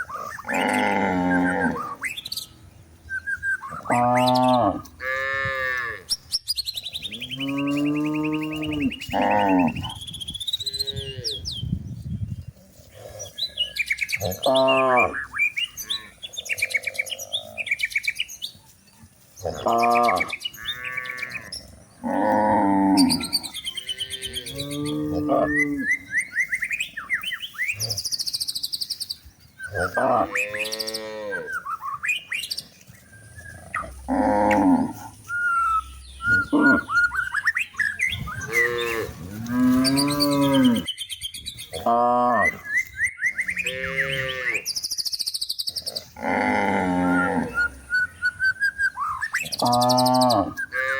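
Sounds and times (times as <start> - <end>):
cows mooing: 0.0 - 2.0, 3.8 - 6.1, 7.1 - 10.0, 10.6 - 11.4, 12.9 - 17.6, 19.4 - 26.1, 29.7 - 31.6, 33.6 - 35.3, 36.2 - 37.3, 38.2 - 40.9, 43.5 - 44.7, 45.8 - 48.0, 49.4 - 50.9
birds chirping: 0.0 - 50.9.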